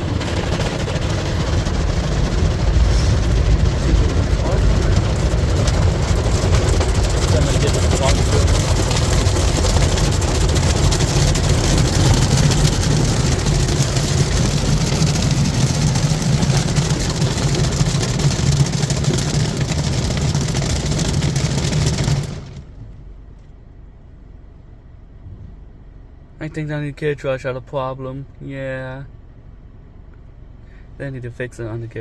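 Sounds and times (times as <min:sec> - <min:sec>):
car wash spraying water: 0:00.0 - 0:23.0
low hum: 0:00.0 - 0:31.1.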